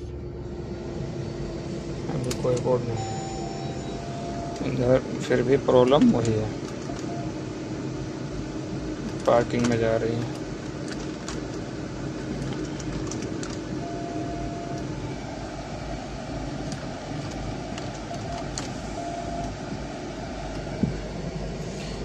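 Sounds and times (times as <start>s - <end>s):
car engine idling: 0.0s - 22.0s
short beeps: 3.0s - 4.8s, 19.0s - 19.6s.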